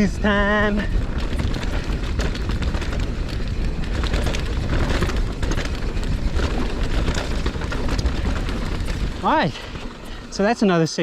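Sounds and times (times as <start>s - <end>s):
wind on microphone: 0.0s - 10.3s
bike rattling and clicking: 0.0s - 11.0s
tyres rumbling: 0.0s - 11.0s.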